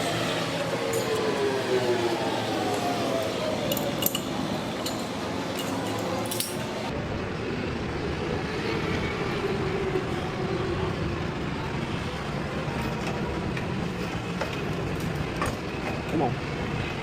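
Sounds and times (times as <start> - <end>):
motor vehicle running: 0.0 - 9.4
metallic clink: 3.7 - 6.9.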